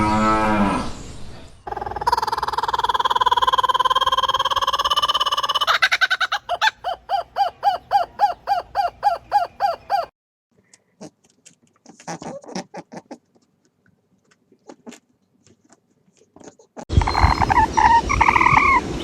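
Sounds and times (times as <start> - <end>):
bird calling: 1.7 - 10.1, 16.9 - 19.0.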